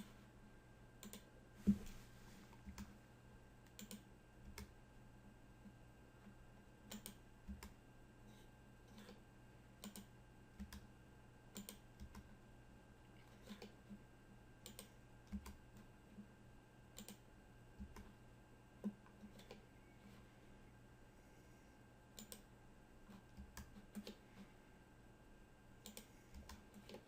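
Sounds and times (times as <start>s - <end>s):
steady low hum: 0.0s - 27.0s
mouse and keyboard clicking: 1.0s - 1.3s, 3.7s - 4.7s, 6.9s - 7.7s, 9.8s - 10.8s, 11.6s - 12.3s, 14.6s - 15.6s, 17.0s - 17.2s, 22.2s - 22.5s, 23.3s - 24.2s, 25.8s - 27.0s.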